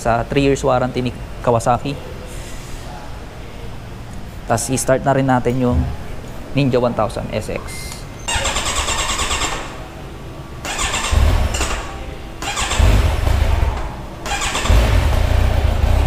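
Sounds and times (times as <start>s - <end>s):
electric starter cranking: 8.3s - 9.8s, 10.6s - 16.0s
motorcycle engine firing and idling: 10.6s - 16.0s.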